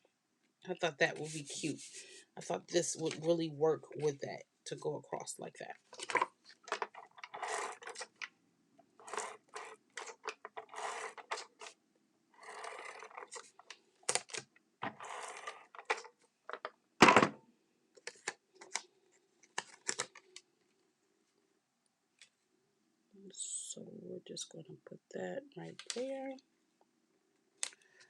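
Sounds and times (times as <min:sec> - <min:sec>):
paper rustling and sliding: 0:01.1 - 0:02.3, 0:09.0 - 0:11.8, 0:12.4 - 0:16.1.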